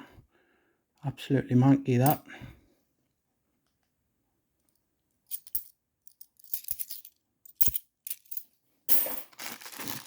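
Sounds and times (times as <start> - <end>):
coins clattering: 5.3 - 10.0
coins clinking: 5.3 - 10.0.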